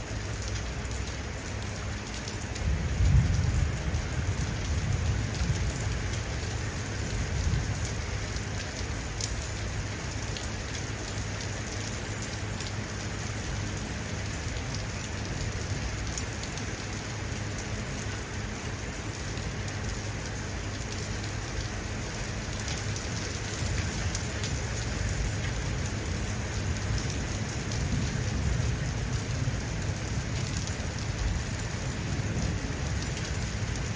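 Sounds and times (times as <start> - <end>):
rain hiss: 0.0 - 33.9.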